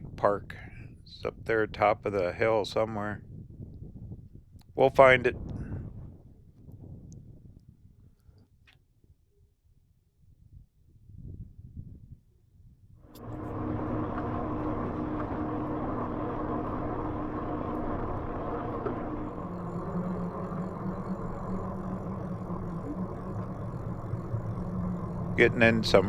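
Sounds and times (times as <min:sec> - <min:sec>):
electric bike motor hum: 0:13.1 - 0:26.0.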